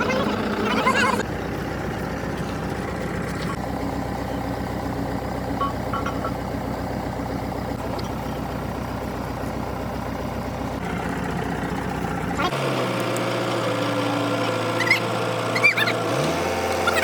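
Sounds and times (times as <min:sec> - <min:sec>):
heavy engine idling: 0:00.0 - 0:17.0
short high beeps: 0:05.6 - 0:06.3.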